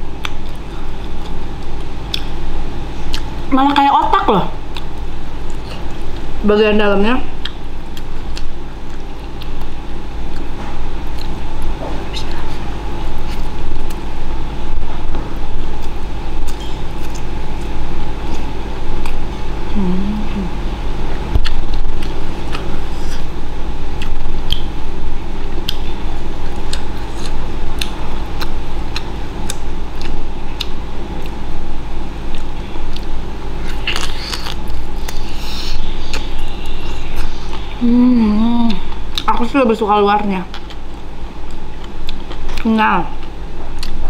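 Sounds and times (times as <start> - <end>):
steady background hum: 0.0 - 44.0
wet chewing and lip smacks: 0.2 - 2.4, 4.7 - 6.3, 7.4 - 14.0, 24.0 - 24.7, 25.5 - 31.4, 32.3 - 37.7, 38.7 - 39.4, 40.5 - 44.0
person humming: 19.7 - 20.7, 37.8 - 38.9.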